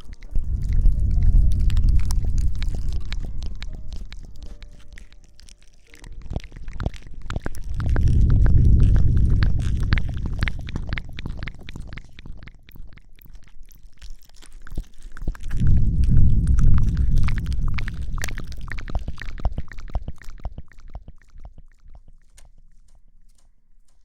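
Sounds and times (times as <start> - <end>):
loud low rumble of mic rubbing: 0.0 - 4.9, 6.1 - 12.1, 15.5 - 20.1
rustling on microphone: 0.0 - 12.5, 14.4 - 24.0.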